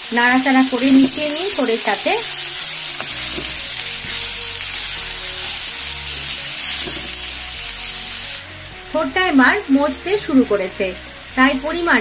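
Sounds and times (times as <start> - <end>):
vegetables sizzling in hot oil: 0.0 - 12.0
wooden spatula stirring: 2.6 - 7.5.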